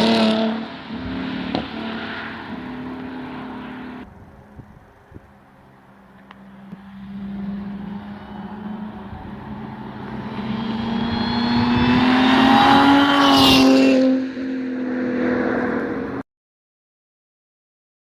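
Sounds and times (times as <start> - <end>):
car engine accelerating: 5.6 - 16.2.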